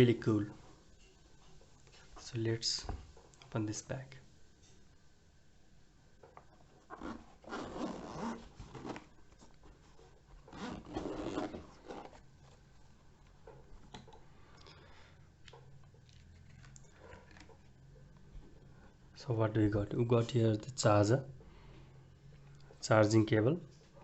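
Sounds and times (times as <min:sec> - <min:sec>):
bag zipper pulled open: 0:06.9 - 0:09.1, 0:10.5 - 0:12.2.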